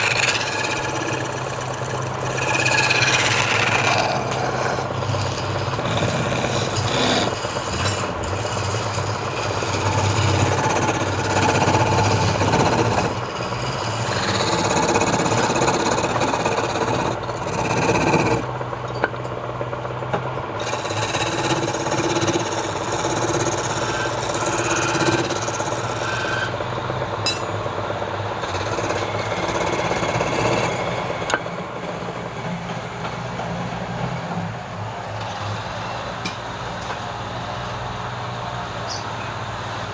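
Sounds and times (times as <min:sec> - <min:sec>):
tool scraping spinning wood: 0:00.0 - 0:37.1
wood lathe motor hum: 0:00.0 - 0:38.8.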